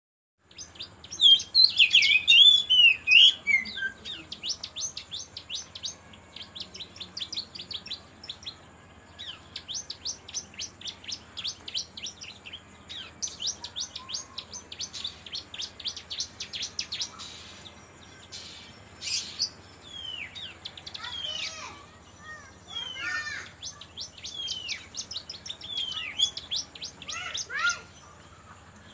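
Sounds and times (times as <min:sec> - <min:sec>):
canary singing trills: 0:00.4 - 0:28.9.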